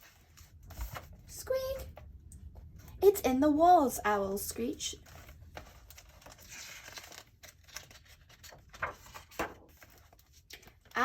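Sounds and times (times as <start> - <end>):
paper rustling: 0.0 - 1.4, 5.0 - 11.0.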